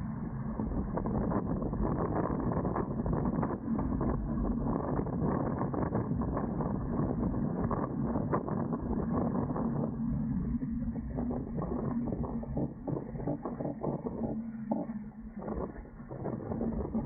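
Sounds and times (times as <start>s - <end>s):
water noise: 0.1s - 17.0s
wind buffeting microphone: 0.5s - 17.0s
small knocks and ticks from boat: 11.2s - 17.0s.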